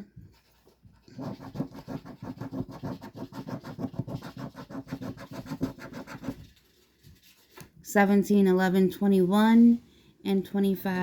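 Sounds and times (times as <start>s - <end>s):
scratching lottery ticket: 0.6s - 7.6s.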